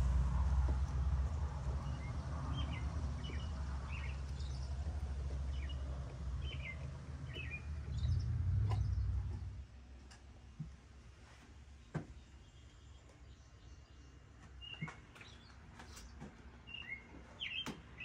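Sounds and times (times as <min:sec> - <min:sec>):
small birds chirping: 0:00.0 - 0:09.6, 0:11.8 - 0:18.0
low rumble: 0:00.0 - 0:09.7.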